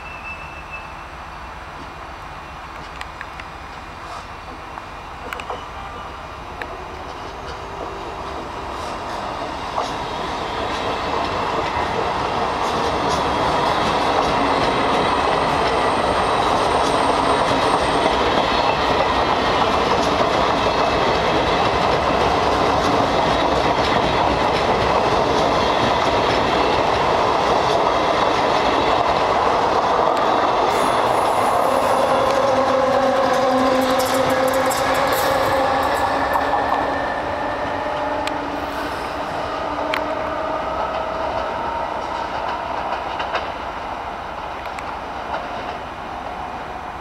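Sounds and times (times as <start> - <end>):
train passing on tracks: 0.0 - 47.0
wheels clicking over rail joints: 16.4 - 36.9, 41.2 - 43.7.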